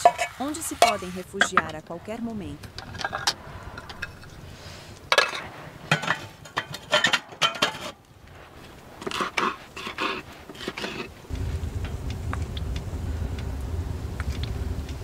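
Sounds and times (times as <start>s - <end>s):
cutlery clinking on dishes: 0.0s - 1.8s.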